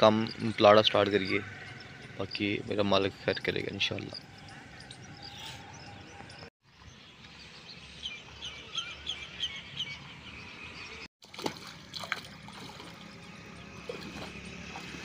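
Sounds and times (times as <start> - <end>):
bird chirping: 0.0 - 11.1
outdoor background noise: 0.0 - 15.0
splashes wading through water: 11.2 - 15.0.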